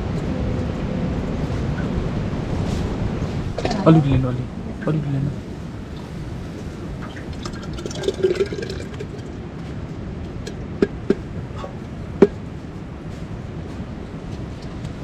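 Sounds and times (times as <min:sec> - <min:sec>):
liquid being poured: 0:07.0 - 0:09.4.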